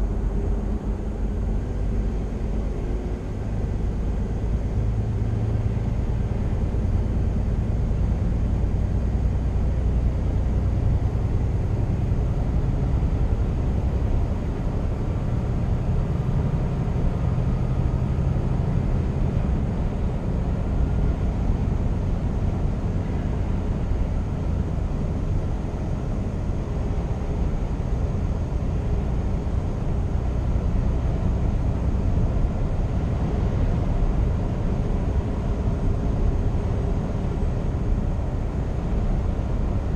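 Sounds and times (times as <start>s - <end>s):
truck diesel engine droning: 0.0s - 39.9s.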